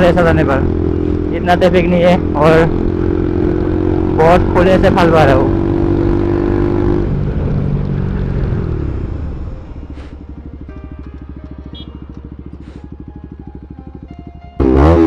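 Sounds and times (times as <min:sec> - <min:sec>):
motorcycle engine slowing to idle: 0:07.8 - 0:14.9.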